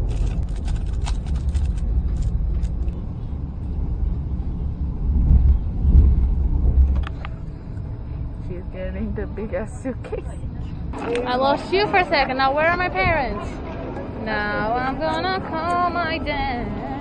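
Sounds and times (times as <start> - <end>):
train clicks and rattles: 0.0 - 3.0, 5.1 - 7.8
train rumbling: 0.0 - 17.0.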